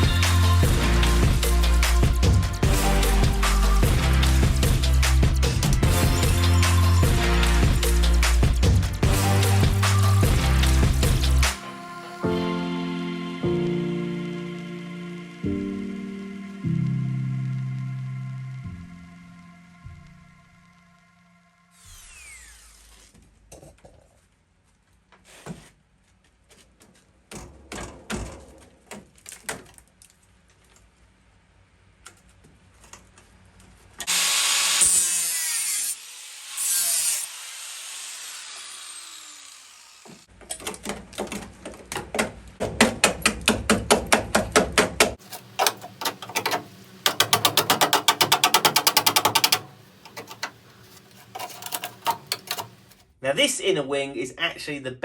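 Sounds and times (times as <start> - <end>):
power tool winding down: 21.3 - 23.2, 34.1 - 40.3
rapid tool strokes: 21.8 - 23.2, 34.1 - 40.3, 45.2 - 53.1.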